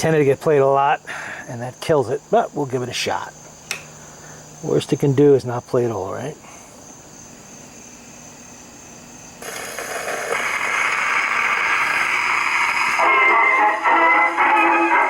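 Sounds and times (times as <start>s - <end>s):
record needle surface hiss: 0.0s - 6.4s, 9.2s - 15.0s
phonograph music: 9.4s - 15.0s.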